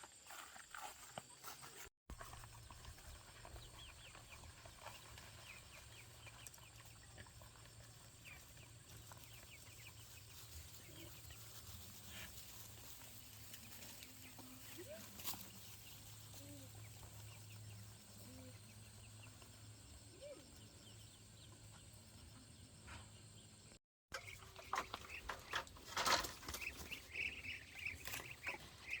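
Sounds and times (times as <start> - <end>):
chickens peeping and clucking: 2.1 - 29.0.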